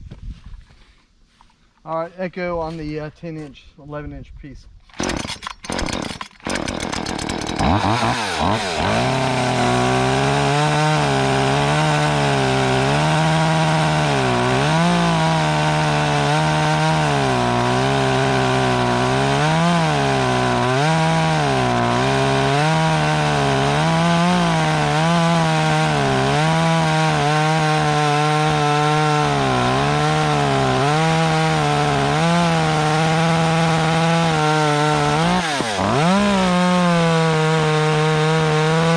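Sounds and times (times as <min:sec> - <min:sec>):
chainsaw cutting a log: 0:04.9 - 0:38.9.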